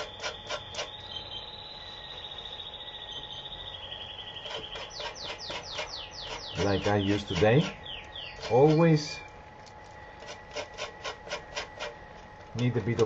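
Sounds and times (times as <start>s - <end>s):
metal grater rasping peel: 0.0s - 1.0s, 4.4s - 9.2s, 10.2s - 13.0s
small bird trilling: 0.0s - 12.0s.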